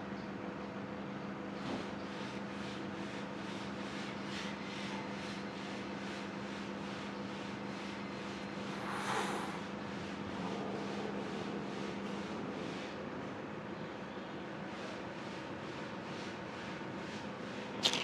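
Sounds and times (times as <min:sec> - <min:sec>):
low machine hum: 0:00.0 - 0:18.0
brief hiss: 0:08.6 - 0:09.8.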